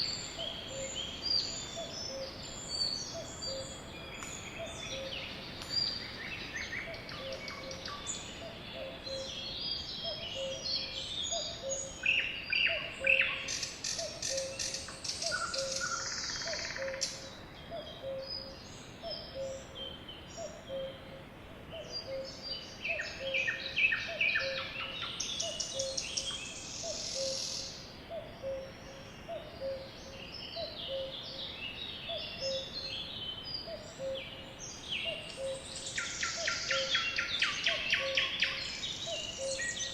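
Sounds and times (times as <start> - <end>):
sparrows chirping: 21.8 - 39.9.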